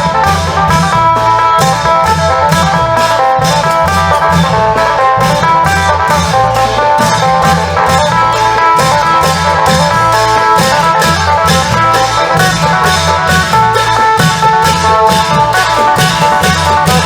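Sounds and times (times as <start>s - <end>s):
long-drum band beat: 0.0s - 17.0s.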